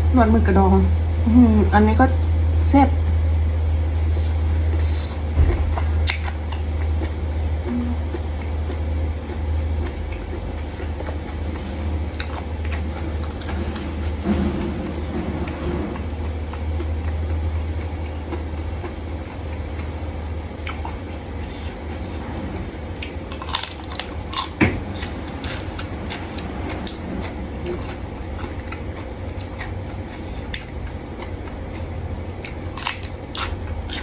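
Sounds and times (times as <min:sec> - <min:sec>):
low hum: 0:00.0 - 0:34.0
chewing and crunching food: 0:01.6 - 0:34.0.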